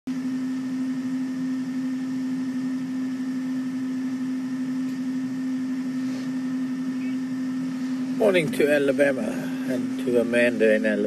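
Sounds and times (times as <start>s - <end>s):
vehicle engine idling: 2.7s - 11.0s.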